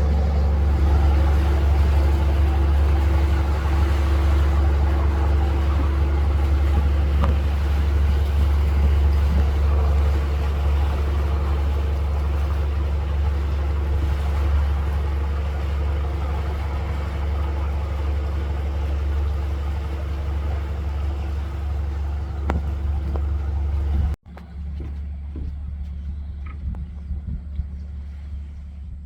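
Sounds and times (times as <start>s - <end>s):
water wash: 0.0s - 24.2s
boat engine humming: 0.0s - 29.0s
low rumble: 0.0s - 29.0s
wind noise: 25.3s - 29.0s.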